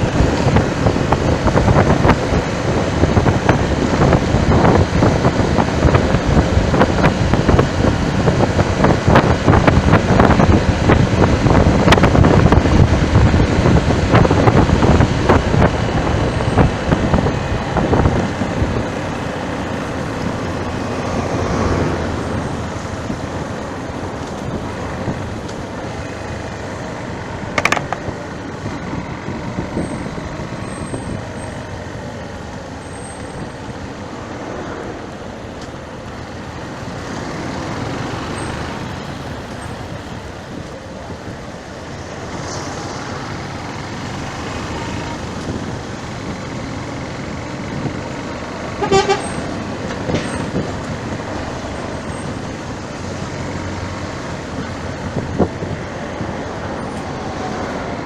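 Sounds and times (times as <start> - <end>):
road traffic: 0.0 - 58.0
vehicle horn toot: 48.8 - 49.4.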